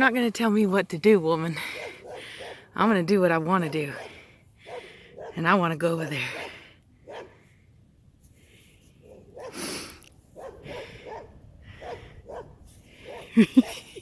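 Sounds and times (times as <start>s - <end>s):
dog barking: 1.7s - 2.7s, 3.7s - 5.4s, 6.2s - 7.4s, 9.0s - 9.6s, 10.4s - 13.8s.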